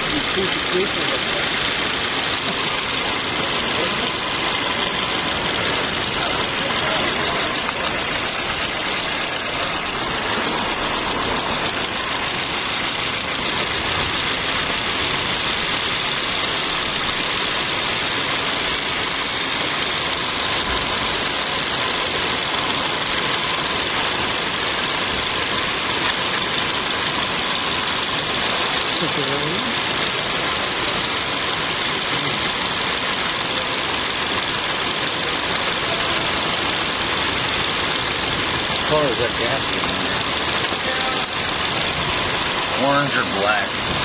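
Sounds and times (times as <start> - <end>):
car engine idling: 0.0 - 44.0
strong even hiss: 0.0 - 44.0.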